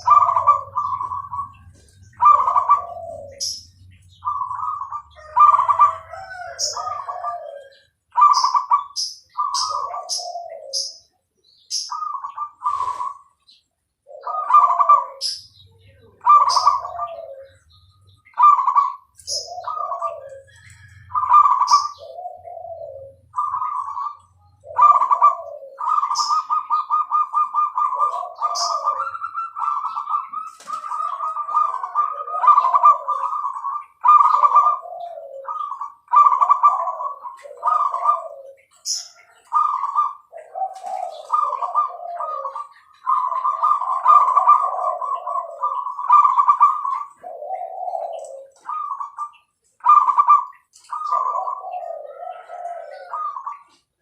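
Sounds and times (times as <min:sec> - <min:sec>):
dove cooing: 0:00.0 - 0:54.0
high bird chirps: 0:00.0 - 0:54.0.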